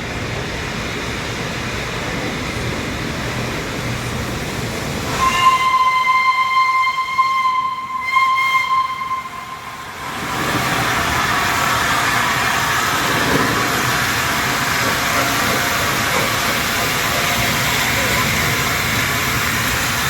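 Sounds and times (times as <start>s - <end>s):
loud steam hiss: 0.0s - 20.0s
steam whistle blast: 5.1s - 10.2s.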